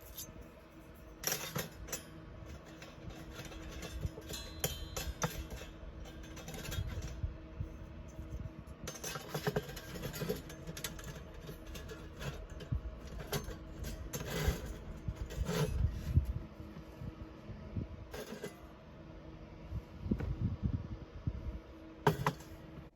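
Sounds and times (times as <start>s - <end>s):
small metal parts clinking: 0.0s - 0.5s, 1.2s - 7.3s, 8.1s - 16.1s
faint steady hum: 0.0s - 22.9s.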